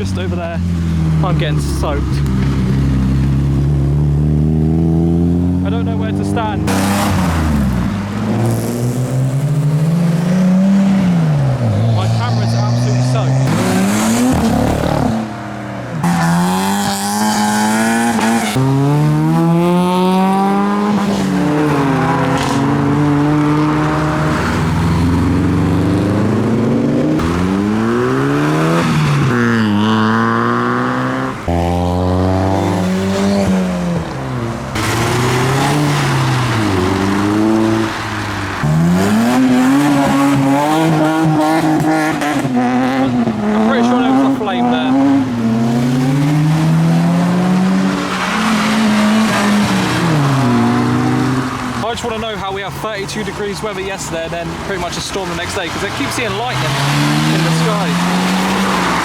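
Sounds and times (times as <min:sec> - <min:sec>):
modified cars accelerating: 0:00.0 - 0:59.0.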